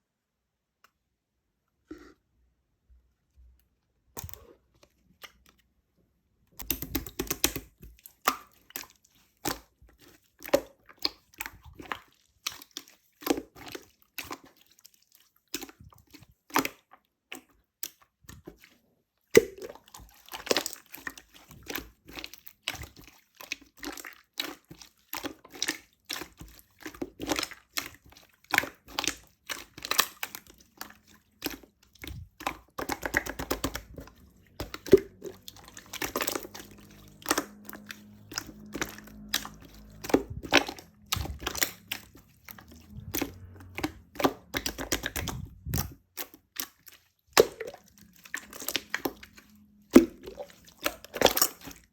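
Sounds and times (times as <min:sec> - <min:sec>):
slime squishing sticky pops: 0:06.6 - 0:08.8, 0:25.2 - 0:51.8.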